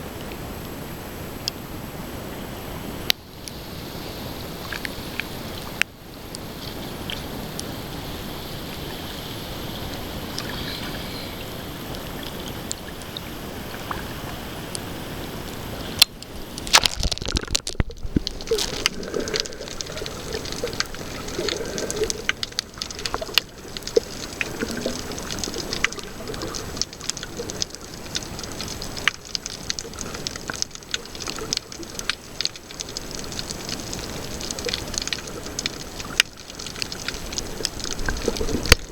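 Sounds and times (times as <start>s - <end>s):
underwater wash: 3.5s - 38.9s
water splashing: 6.6s - 38.9s
gurgling bubbles: 8.6s - 38.9s
crackling clicks: 16.0s - 38.9s.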